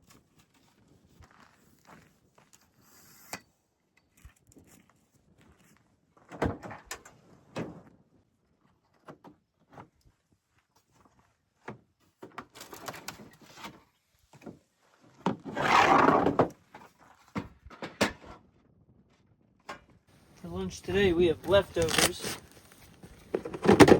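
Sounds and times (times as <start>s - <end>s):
loud rustle or scrape: 15.5s - 16.5s, 21.4s - 23.9s
camping gear knocks and clunks: 21.4s - 23.9s.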